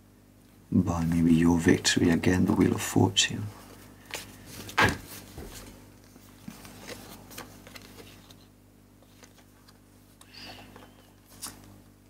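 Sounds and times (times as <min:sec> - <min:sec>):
rustles and clicks of card deck: 0:04.0 - 0:11.9
cards sliding and flicking: 0:11.3 - 0:11.8.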